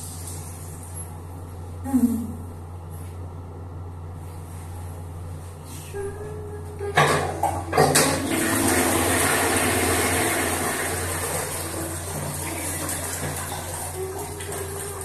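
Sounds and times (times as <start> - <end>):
toilet flushing: 7.0 - 15.0.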